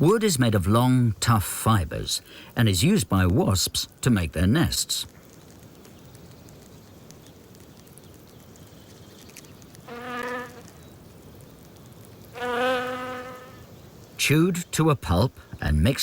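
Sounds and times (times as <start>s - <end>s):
faint steady hiss: 0.0s - 16.0s
wasp buzzing in flight: 9.8s - 10.8s, 12.3s - 13.7s.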